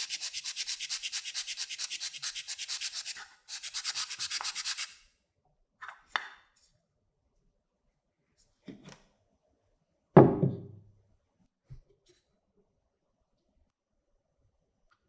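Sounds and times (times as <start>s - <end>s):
hand sanding strokes: 0.0s - 5.0s.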